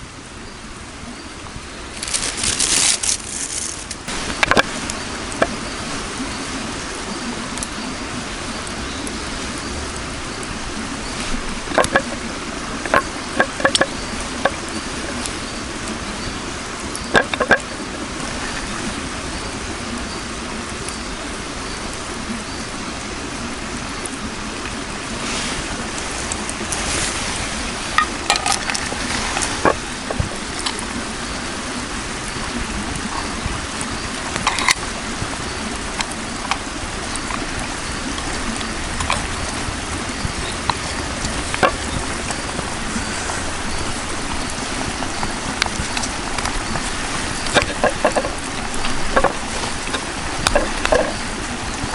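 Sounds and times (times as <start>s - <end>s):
campfire hissing: 0.0s - 51.9s
fire pops and crackles: 1.9s - 5.7s, 10.4s - 16.2s, 16.8s - 18.8s, 24.0s - 31.2s, 32.5s - 51.9s.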